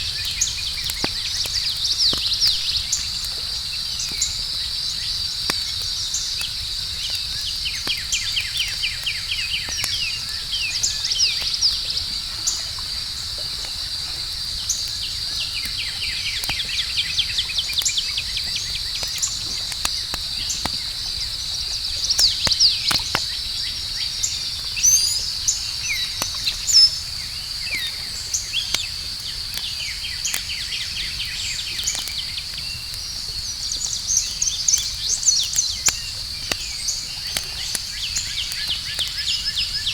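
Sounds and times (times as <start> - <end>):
campfire crackling and popping: 0.0 - 39.9
insect chorus: 0.0 - 39.9
bird chirps: 24.8 - 28.8.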